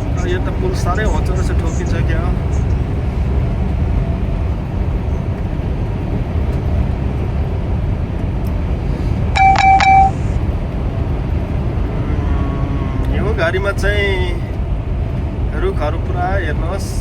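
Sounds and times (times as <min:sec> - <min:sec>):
car road noise: 0:00.0 - 0:17.0
electronic chime: 0:09.4 - 0:10.3.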